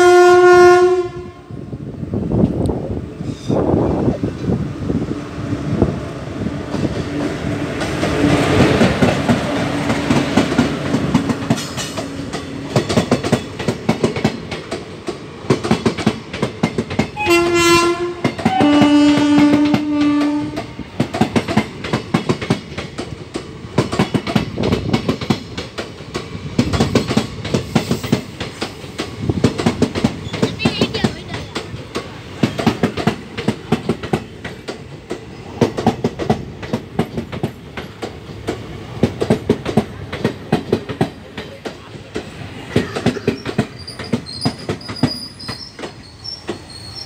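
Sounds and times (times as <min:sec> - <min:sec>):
train horn blasts: 0:00.0 - 0:01.6, 0:17.2 - 0:20.8
train rumbling: 0:00.0 - 0:47.0
wheels clickety-clack over rail joints: 0:02.2 - 0:47.0.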